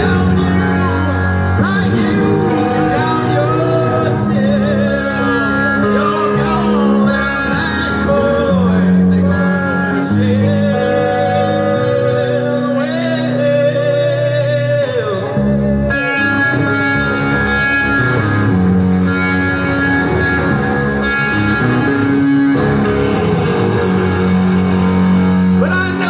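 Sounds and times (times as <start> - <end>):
man singing: 0.0 - 18.1, 25.6 - 26.0
rock band playing: 0.0 - 26.0.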